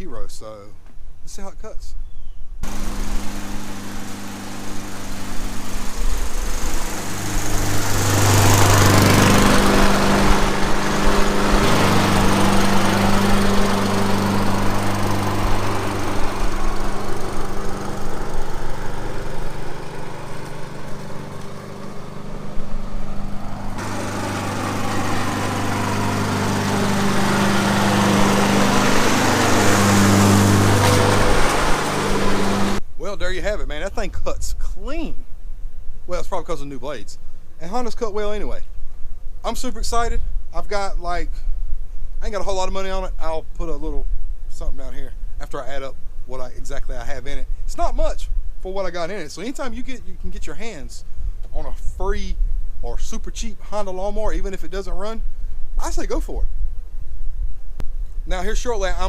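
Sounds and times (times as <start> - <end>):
lawn mower cutting grass: 2.6 - 32.8.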